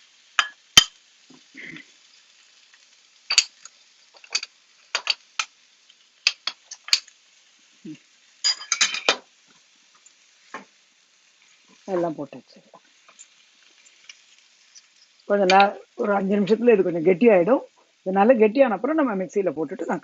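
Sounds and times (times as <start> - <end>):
utensil clinking against a pan: 4.2 - 5.5, 8.4 - 9.2.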